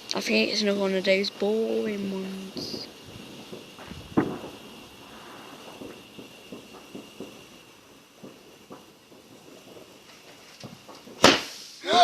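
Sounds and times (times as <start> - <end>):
firework bang: 1.4 - 12.0
faint firework pops: 2.2 - 11.8.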